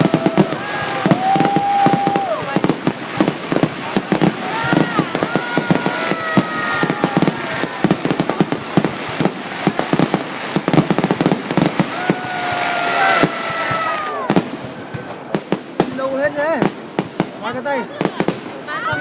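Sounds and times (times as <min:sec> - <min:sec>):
shrill firework whistles: 0:00.0 - 0:02.5
fireworks bangs and crackles: 0:00.0 - 0:19.0.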